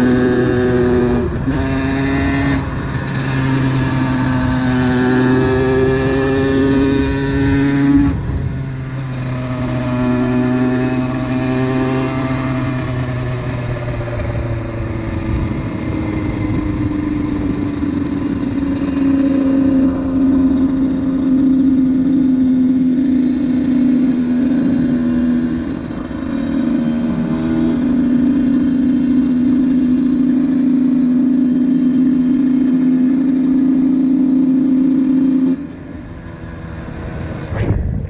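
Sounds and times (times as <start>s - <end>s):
two-stroke motorcycle engine running: 0.0s - 37.6s.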